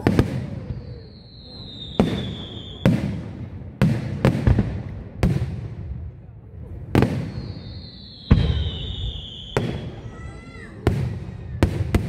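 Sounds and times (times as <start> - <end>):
whistling firework shell: 0.0 - 3.0, 7.1 - 10.2.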